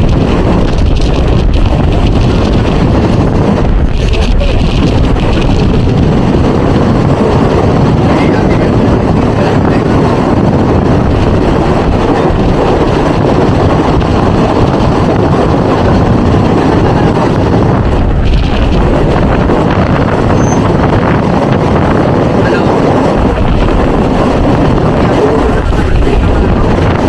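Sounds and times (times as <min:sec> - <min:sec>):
train wheels rumbling: 0:00.0 - 0:27.0.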